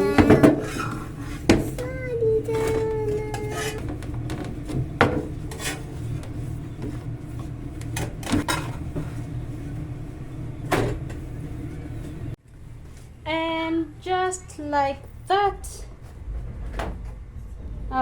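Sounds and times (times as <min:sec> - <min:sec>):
pans and utensils knocking: 0:00.0 - 0:01.9, 0:02.5 - 0:05.8
steady low hum: 0:00.0 - 0:18.0.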